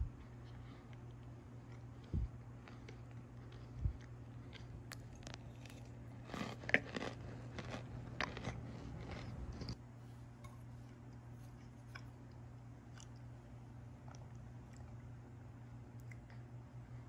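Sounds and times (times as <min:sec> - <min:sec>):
low steady hum: 0:00.0 - 0:17.0
crisp crunches of chewing: 0:00.6 - 0:09.8.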